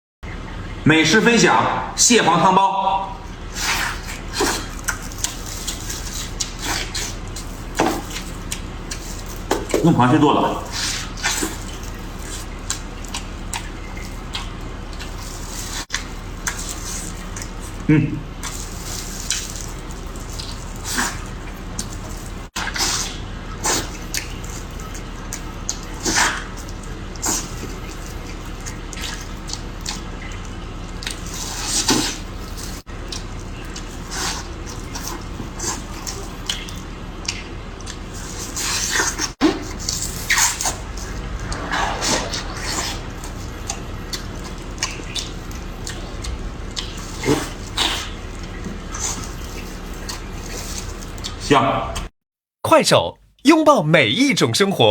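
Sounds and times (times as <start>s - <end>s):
wet slurps and squishes: 3.2s - 51.5s
low hum: 39.6s - 47.2s.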